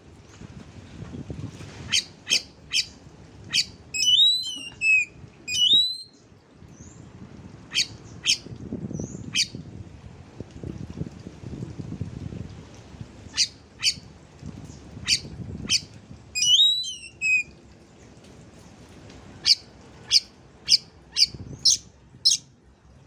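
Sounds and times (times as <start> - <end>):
swooping bird whistles: 1.9 - 2.9, 3.5 - 6.1, 7.7 - 8.4, 15.1 - 15.8, 16.4 - 17.5.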